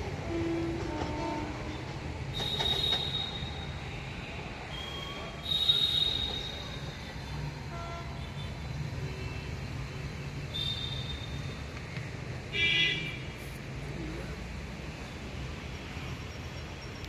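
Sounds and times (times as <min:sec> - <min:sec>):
train rumbling: 0:00.0 - 0:09.0
wheel squeal: 0:02.3 - 0:03.8, 0:04.7 - 0:07.1, 0:10.6 - 0:11.6
shrill multi-tone horn toot: 0:04.7 - 0:06.9.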